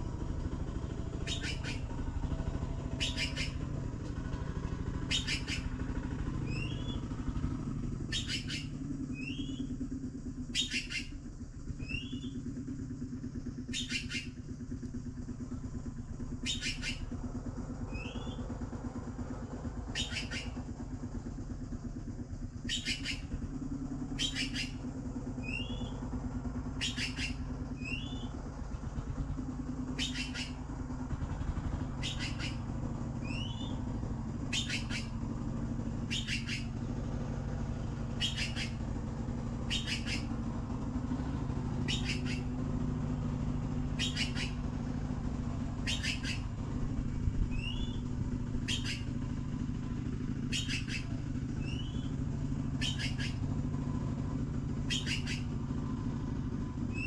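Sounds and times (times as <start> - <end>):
steady low rumble: 0.0 - 57.0
rising bird chirp: 0.4 - 57.0
short high bird calls: 1.1 - 3.7, 5.0 - 7.2, 8.0 - 9.8, 10.5 - 11.2, 11.8 - 12.4, 13.7 - 14.4, 16.4 - 17.1, 17.8 - 18.5, 19.8 - 20.6, 22.6 - 23.4, 24.1 - 26.0, 26.7 - 28.4, 29.9 - 30.7, 31.9 - 35.4, 36.0 - 37.0, 38.1 - 38.9, 39.6 - 40.4, 41.8 - 42.7, 43.9 - 44.7, 45.8 - 46.6, 47.5 - 49.4, 50.4 - 53.6, 54.8 - 56.1.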